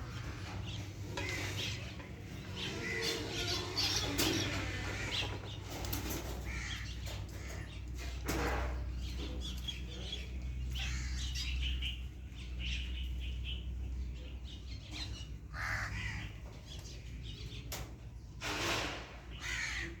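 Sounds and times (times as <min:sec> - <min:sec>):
small birds chirping: 0:00.0 - 0:18.4
crows cawing: 0:02.6 - 0:05.6, 0:06.2 - 0:07.8, 0:10.8 - 0:11.5, 0:15.5 - 0:16.5, 0:19.4 - 0:20.0.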